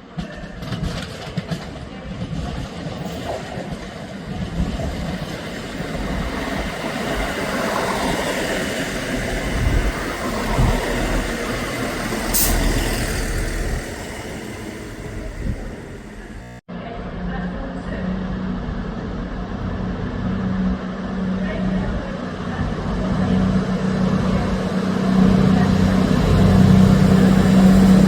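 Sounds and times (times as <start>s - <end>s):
diesel train engine running: 4.3s - 28.0s
air hiss: 12.1s - 16.3s.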